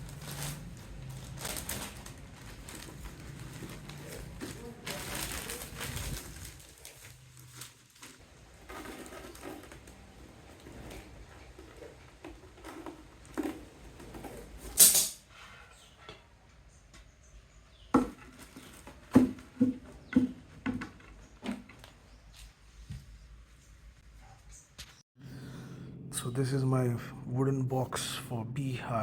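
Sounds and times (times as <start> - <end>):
plastic wrap rustling: 0.0 - 13.6.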